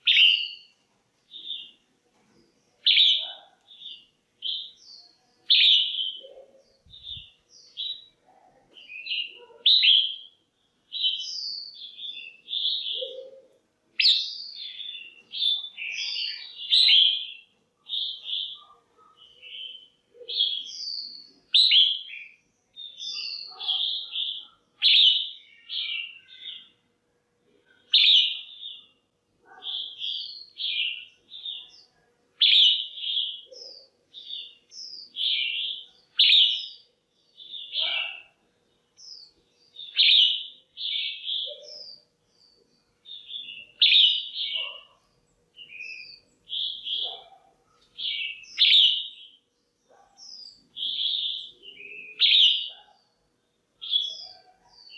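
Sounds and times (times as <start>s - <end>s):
bird chirping calls: 0.0s - 26.8s, 27.6s - 54.9s.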